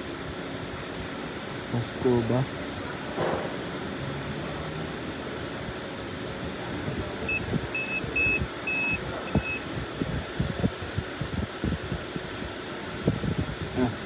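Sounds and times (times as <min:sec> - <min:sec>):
high electronic beeps: 0:07.3 - 0:09.6.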